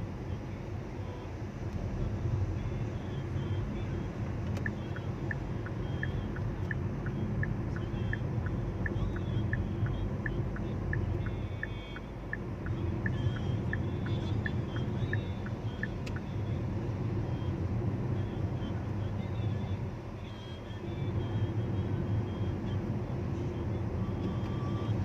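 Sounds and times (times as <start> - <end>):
motor vehicle rumble: 0.0 - 25.0
light regular ticking: 4.4 - 16.4.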